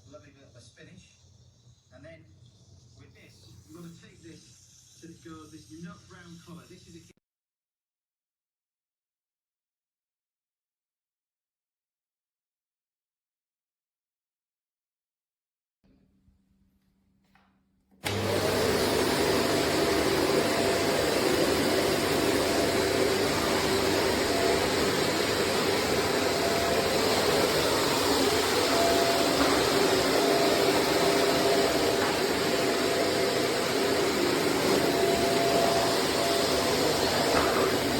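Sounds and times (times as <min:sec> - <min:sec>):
upright vacuum cleaner running: 0:18.0 - 0:37.9.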